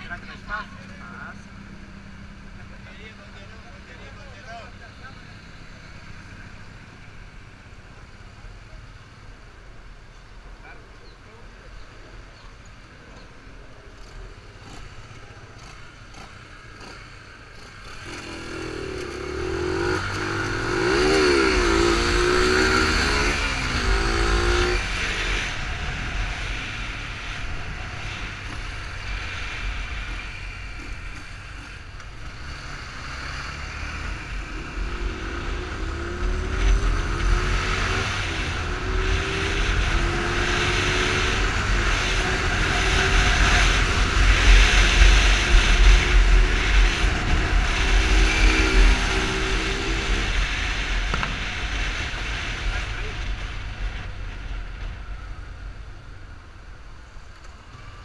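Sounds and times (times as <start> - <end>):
motorcycle engine accelerating: 13.1 - 58.0.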